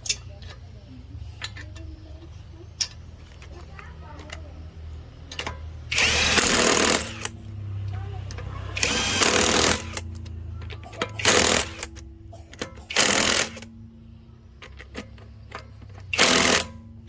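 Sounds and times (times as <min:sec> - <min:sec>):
impact wrench hammering bursts: 0:05.3 - 0:13.9, 0:14.6 - 0:17.0.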